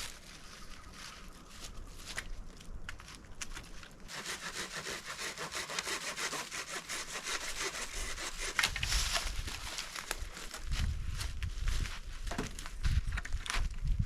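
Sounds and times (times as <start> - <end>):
hand saw cutting wood: 4.1 - 9.2.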